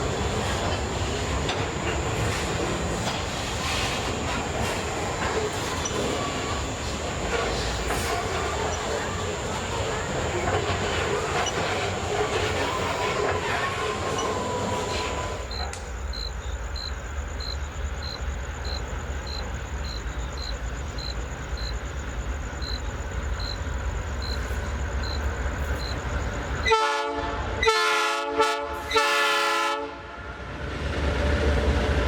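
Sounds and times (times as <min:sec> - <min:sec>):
diesel locomotive rumbling: 0:00.0 - 0:32.0
multi-note air horn blasts: 0:26.7 - 0:30.2.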